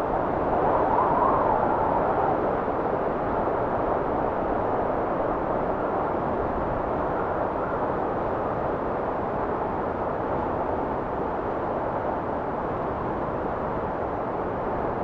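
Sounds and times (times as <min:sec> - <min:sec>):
blizzard wind rushing: 0:00.0 - 0:15.0.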